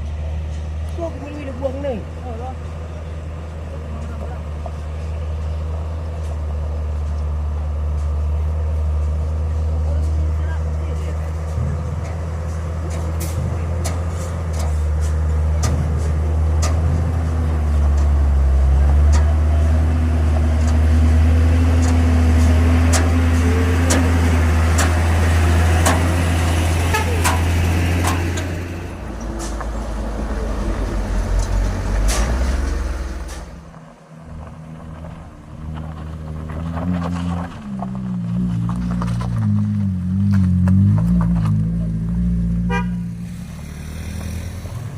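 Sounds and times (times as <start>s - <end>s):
heavy diesel truck engine: 0.0s - 44.9s
sharp clicks and knocks: 12.8s - 17.1s, 21.8s - 25.1s, 25.8s - 26.2s, 27.0s - 28.6s.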